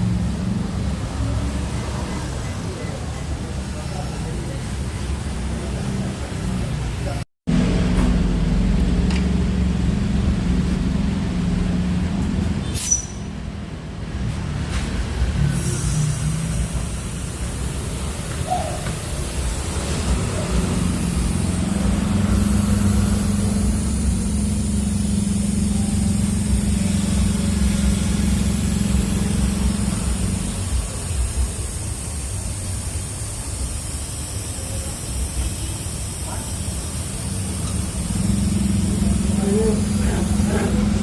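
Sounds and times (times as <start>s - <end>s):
car engine idling: 15.8s - 41.0s.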